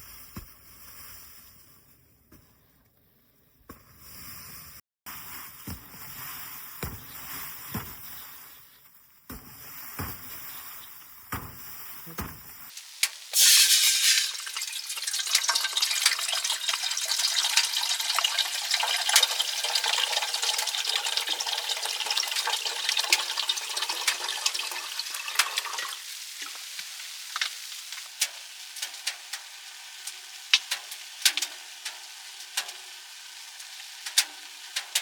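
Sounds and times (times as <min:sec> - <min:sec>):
food sizzling in a hot pan: 0:12.7 - 0:35.0.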